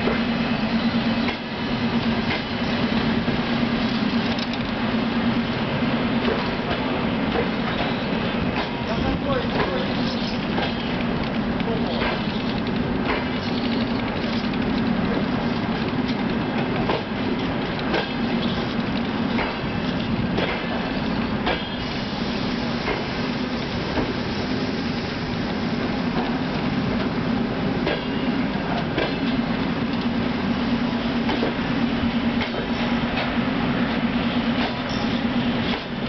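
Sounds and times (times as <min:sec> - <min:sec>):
train wheels rumbling on rail: 0:00.0 - 0:36.0
clicks from rail joints: 0:04.1 - 0:04.8, 0:06.2 - 0:08.8, 0:09.5 - 0:20.8, 0:21.4 - 0:21.8, 0:28.8 - 0:30.1, 0:32.4 - 0:33.4, 0:34.6 - 0:36.0.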